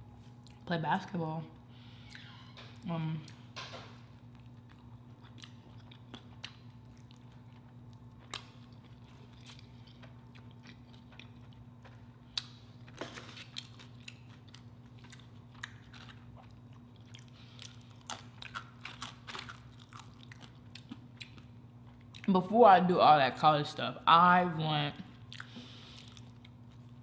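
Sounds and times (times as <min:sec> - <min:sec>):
faint low hum: 0:00.0 - 0:27.0
biting and chewing taco: 0:04.0 - 0:22.3.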